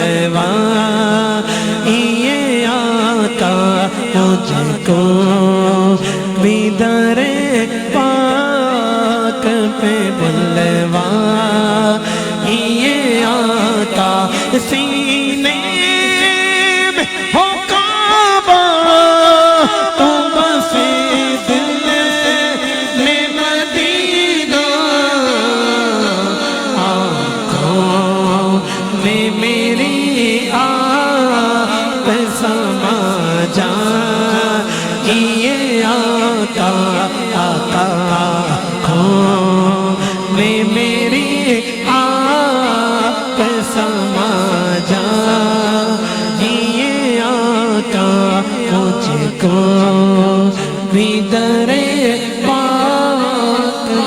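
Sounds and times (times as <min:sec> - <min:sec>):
man singing unaccompanied: 0:00.0 - 0:54.0
low vocal drone: 0:18.0 - 0:54.0.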